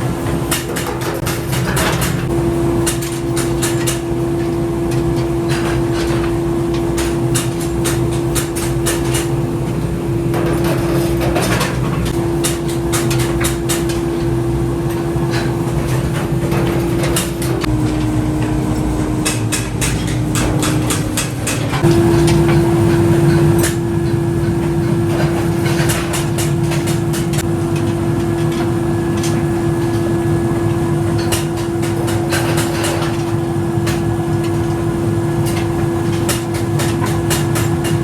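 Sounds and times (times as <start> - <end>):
machine humming: 4.0 - 27.7
metallic clicks and knocks: 17.0 - 22.0.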